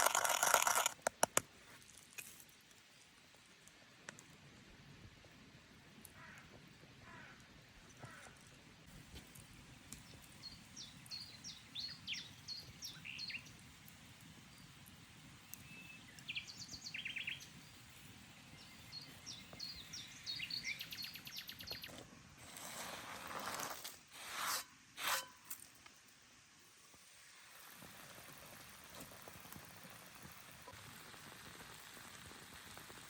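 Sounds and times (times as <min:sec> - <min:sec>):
low outdoor background: 0:00.0 - 0:33.0
small birds chirping: 0:10.0 - 0:13.6, 0:15.4 - 0:22.0.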